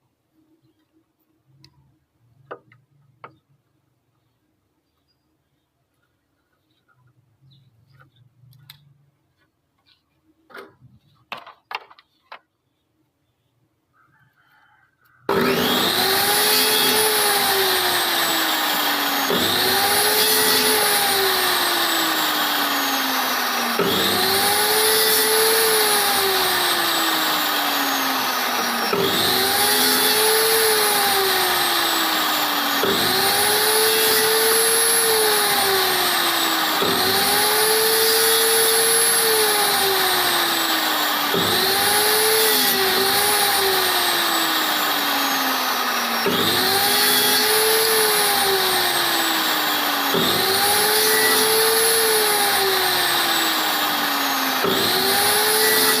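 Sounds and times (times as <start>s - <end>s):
power tool motor whining: 15.3s - 56.0s.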